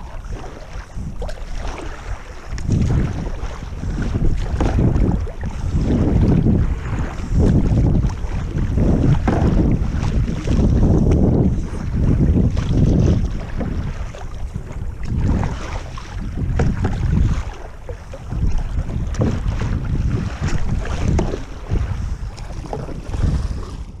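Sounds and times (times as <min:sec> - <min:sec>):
gusting wind buffeting microphone: 0:00.0 - 0:24.0.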